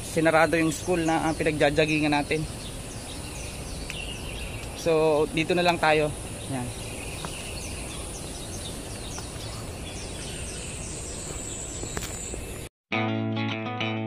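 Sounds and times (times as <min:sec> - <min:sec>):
bird chirping: 0:00.2 - 0:12.7
guitar music: 0:12.9 - 0:14.0.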